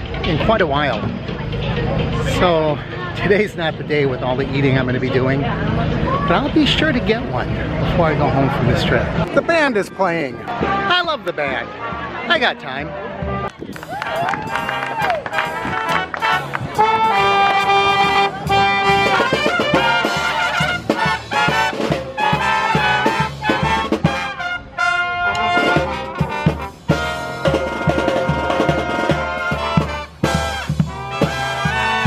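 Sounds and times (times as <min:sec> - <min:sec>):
trumpets and trombones: 0:09.2 - 0:32.0
steady drum beat: 0:13.4 - 0:24.5, 0:25.4 - 0:32.0.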